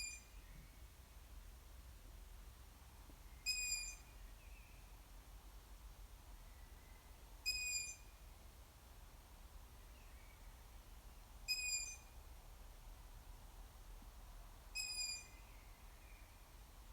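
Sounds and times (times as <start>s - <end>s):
owl squeaky begging call: 0.0s - 0.3s, 3.5s - 4.1s, 7.5s - 8.1s, 11.5s - 12.1s, 14.8s - 15.4s.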